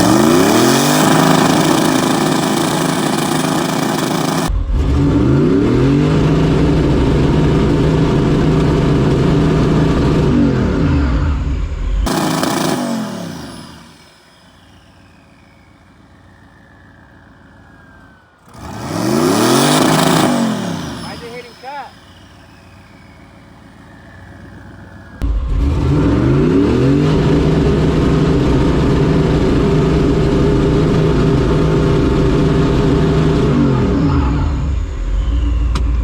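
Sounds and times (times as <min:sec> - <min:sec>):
engine revving: 0:00.0 - 0:36.0
faint falling whine: 0:12.7 - 0:25.6.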